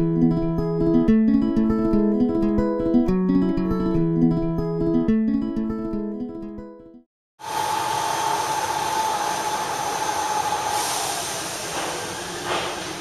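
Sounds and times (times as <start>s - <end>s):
acoustic guitar music: 0.0s - 7.0s
electric train rolling: 7.4s - 13.0s.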